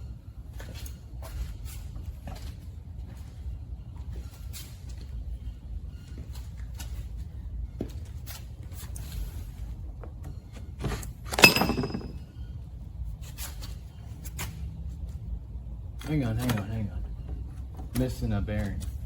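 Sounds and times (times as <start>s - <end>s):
metal parts clicking and knocking: 11.3s - 12.2s
ringing metal clank: 11.4s - 12.3s.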